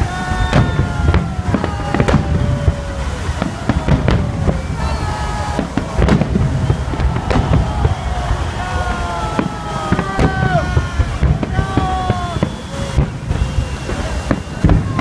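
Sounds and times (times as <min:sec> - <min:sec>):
fireworks bursting with sharp bangs: 0:00.0 - 0:15.0.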